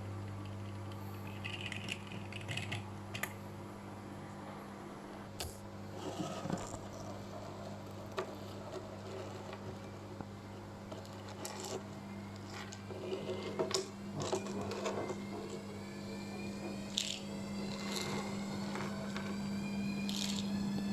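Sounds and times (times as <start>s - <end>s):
steady low hum: 0.0s - 20.9s
small objects clicking and knocking: 20.1s - 20.5s.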